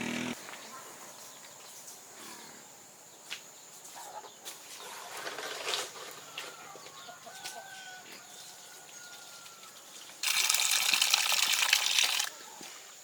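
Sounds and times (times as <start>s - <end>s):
faint farmyard bird calls: 3.6s - 10.2s.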